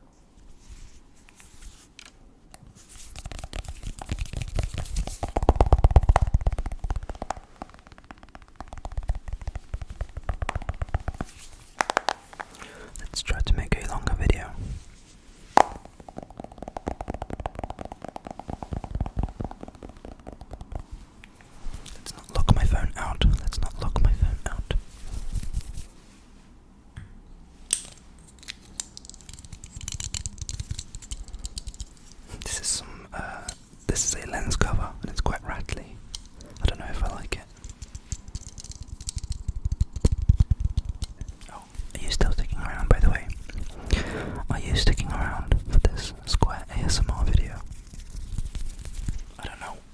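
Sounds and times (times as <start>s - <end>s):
rapid small clicks and snips: 2.0s - 14.4s, 15.6s - 24.6s, 27.7s - 49.5s
sharp bass-heavy tapping: 3.2s - 14.7s, 15.5s - 25.8s, 36.7s - 49.3s.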